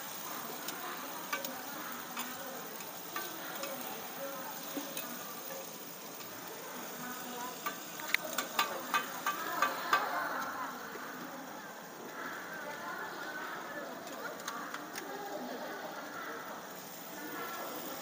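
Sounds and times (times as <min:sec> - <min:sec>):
omelette sizzling on griddle: 0:00.0 - 0:18.0
metal spatulas scraping and tapping: 0:07.6 - 0:10.1.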